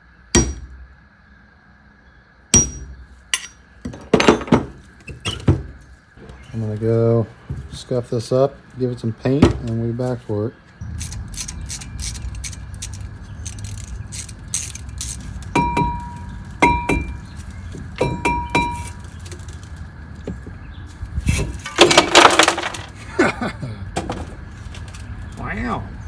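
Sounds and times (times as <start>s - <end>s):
metal parts clinking: 3.4s - 5.5s, 10.8s - 19.9s, 21.3s - 23.1s, 24.0s - 25.4s.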